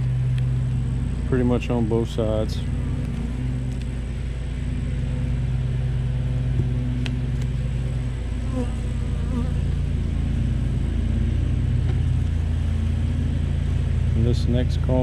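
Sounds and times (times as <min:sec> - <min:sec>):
bees humming around hive: 0:00.0 - 0:15.0
bees flying past microphone: 0:07.6 - 0:10.0.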